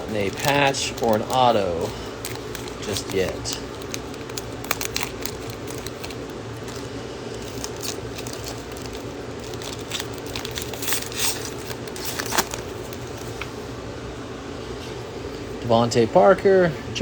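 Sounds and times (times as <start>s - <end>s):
cards clicking: 0.0s - 6.8s
plastic wrapper crinkling and tearing: 0.0s - 13.5s
steady room hum: 0.0s - 17.0s.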